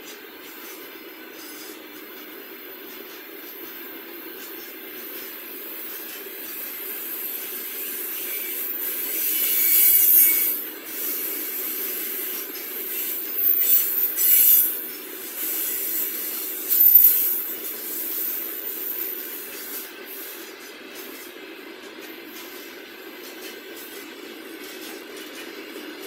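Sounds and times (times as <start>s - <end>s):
wheels screeching: 5.9s - 20.5s.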